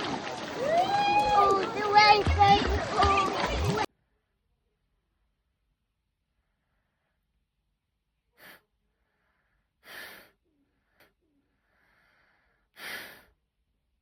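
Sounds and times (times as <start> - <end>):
faint breathy puffs: 8.4 - 13.4.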